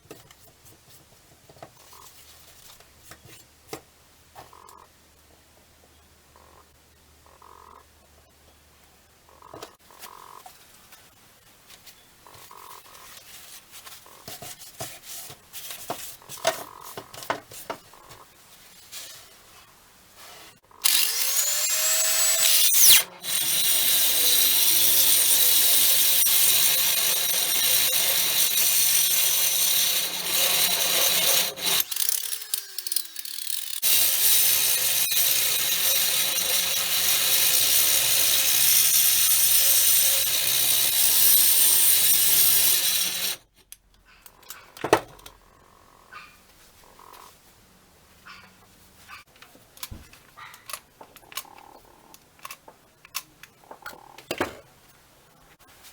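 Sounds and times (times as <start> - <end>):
power tool running under load: 20.8 - 43.4.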